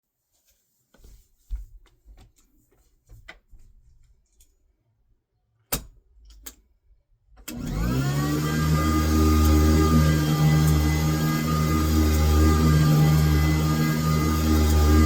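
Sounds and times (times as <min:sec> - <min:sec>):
vacuum motor whining: 0:07.5 - 0:15.0.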